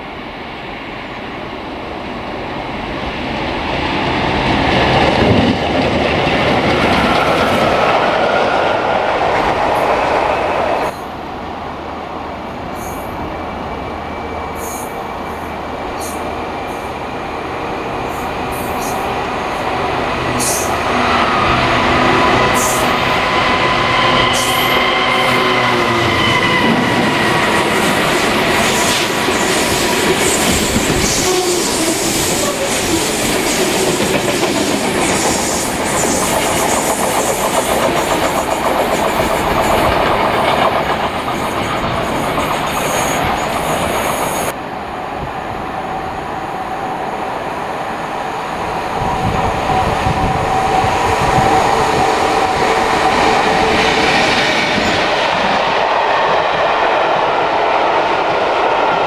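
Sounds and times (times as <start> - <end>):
train wheels clicking on rails: 2.4 - 11.2, 12.6 - 44.6.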